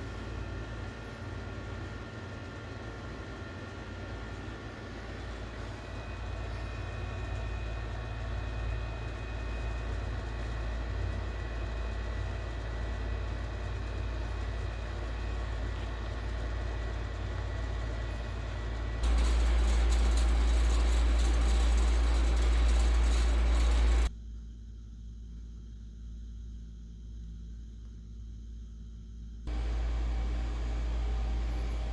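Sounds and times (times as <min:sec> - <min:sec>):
ceiling fan running: 0:00.0 - 0:24.1, 0:29.5 - 0:31.9
loud hum and hiss: 0:11.6 - 0:24.1, 0:29.5 - 0:31.9.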